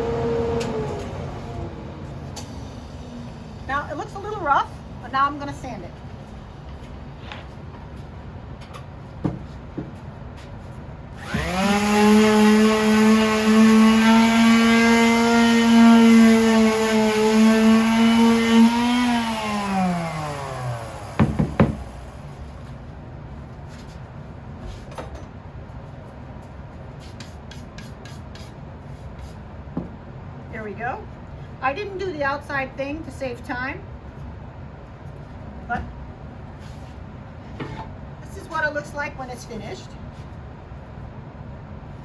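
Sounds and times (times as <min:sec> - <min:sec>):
electric sander whining: 0:11.2 - 0:21.2
sharp knocks: 0:21.2 - 0:21.9.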